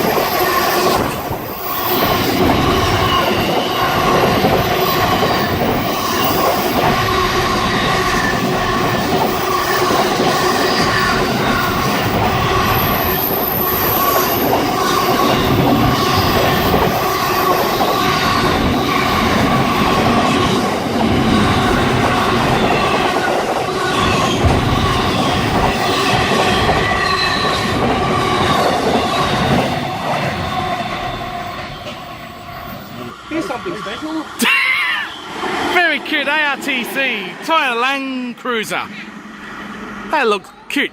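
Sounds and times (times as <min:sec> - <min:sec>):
thin squealing tones: 0:00.0 - 0:20.4, 0:23.8 - 0:35.4
train wheels clattering on rails: 0:00.0 - 0:34.2.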